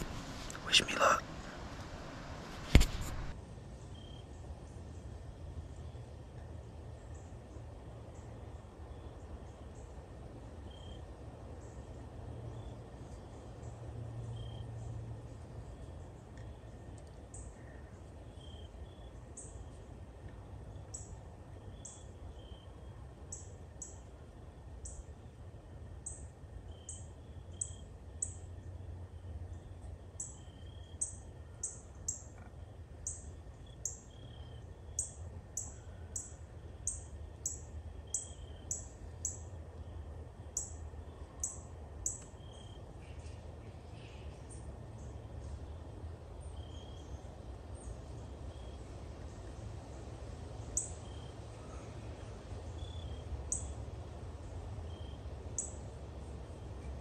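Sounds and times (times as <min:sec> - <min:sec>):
steady low rumble: 0:00.0 - 0:10.6.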